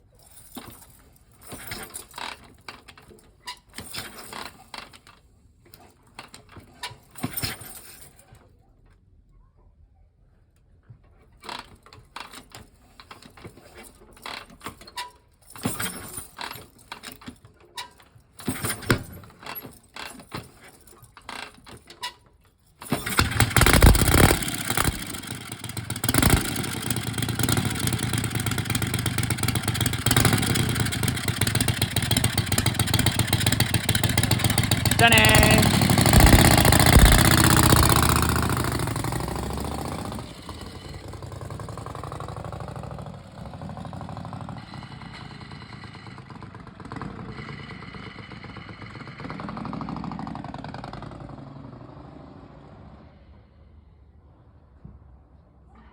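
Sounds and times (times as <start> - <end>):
motorcycle engine running loudly: 23.1 - 51.5
clicks and clunks: 34.2 - 38.1.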